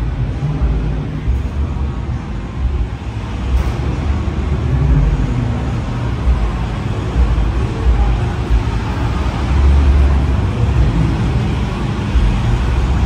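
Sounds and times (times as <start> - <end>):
car engines rumbling: 0.0 - 13.0.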